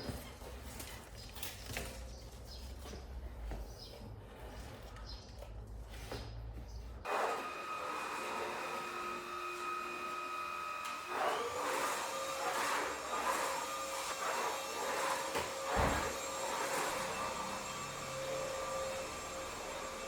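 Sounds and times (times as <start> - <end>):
vacuum cleaner motor whining: 7.1 - 20.0.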